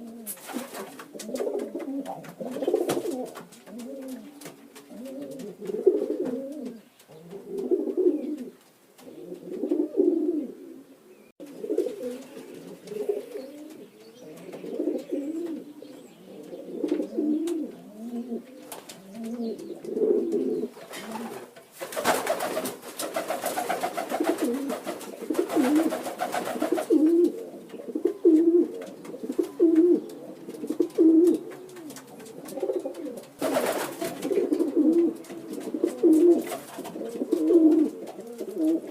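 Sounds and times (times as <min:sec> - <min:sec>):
birds low calls: 0:10.3 - 0:21.4.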